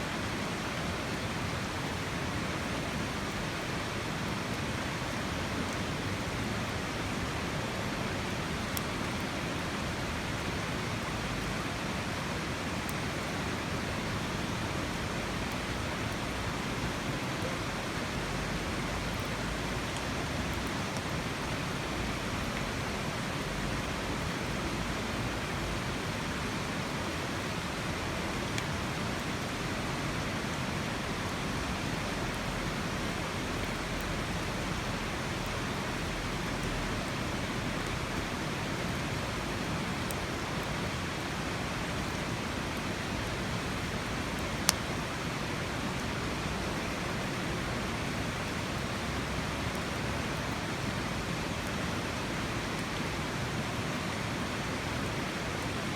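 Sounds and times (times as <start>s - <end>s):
fire ticks and crackle: 8.2s - 26.3s, 27.6s - 29.9s, 30.6s - 45.0s.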